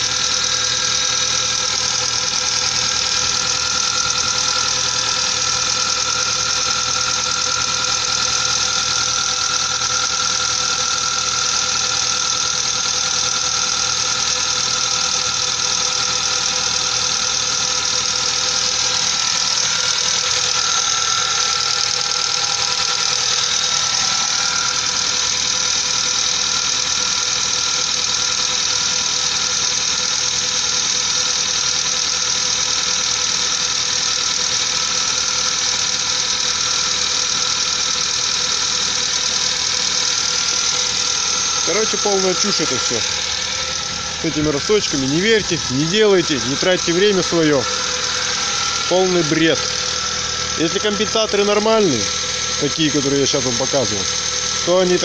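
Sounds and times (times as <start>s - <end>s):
valve lifters knocking: 0.0s - 26.6s, 38.2s - 55.0s
car engine running: 0.0s - 55.0s.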